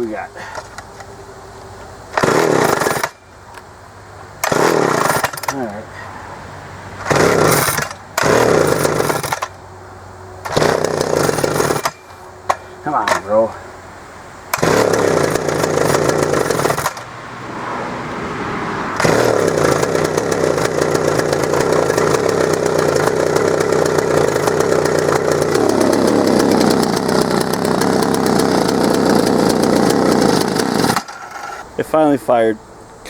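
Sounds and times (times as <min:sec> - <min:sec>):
two-stroke chainsaw engine running: 0:02.1 - 0:03.2, 0:04.4 - 0:05.8, 0:07.0 - 0:09.6, 0:10.4 - 0:13.5, 0:14.5 - 0:17.2, 0:19.0 - 0:31.6.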